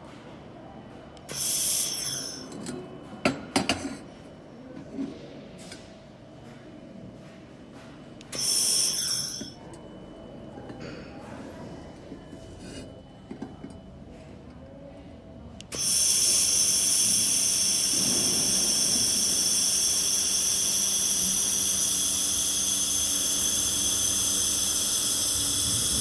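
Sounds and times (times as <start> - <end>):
laser welder hissing with whine: 1.3 - 2.5, 8.3 - 9.6, 15.7 - 26.0.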